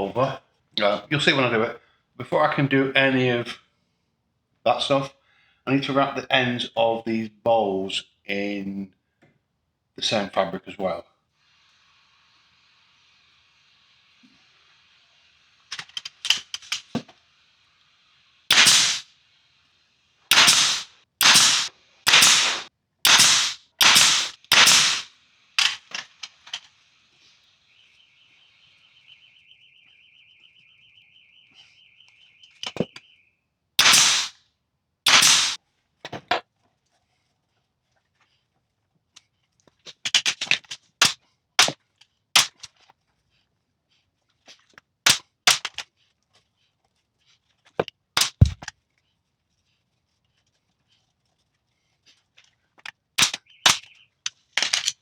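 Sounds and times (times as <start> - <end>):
compressed air bursts: 18.5 - 19.1, 20.3 - 26.6, 33.8 - 34.4, 35.1 - 35.6.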